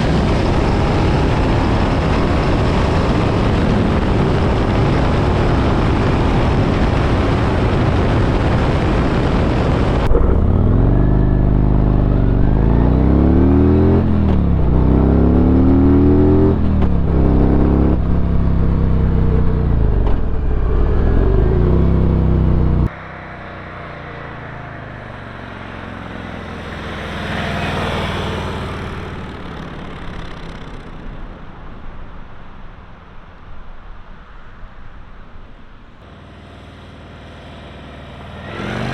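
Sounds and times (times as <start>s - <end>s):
wind noise: 0.0s - 22.9s
motorcycle engine accelerating: 0.0s - 32.0s, 36.0s - 38.9s
motorcycle passing by: 7.2s - 31.5s, 36.0s - 38.9s.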